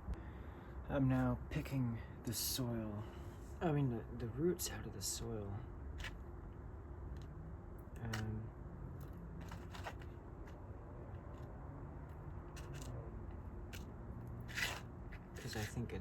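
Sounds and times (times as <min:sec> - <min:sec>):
roots crackling in soil: 0:13.6 - 0:16.0.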